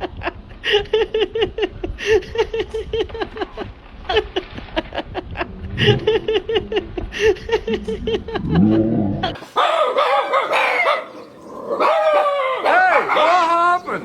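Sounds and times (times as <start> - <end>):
person laughing: 0.0 - 9.4.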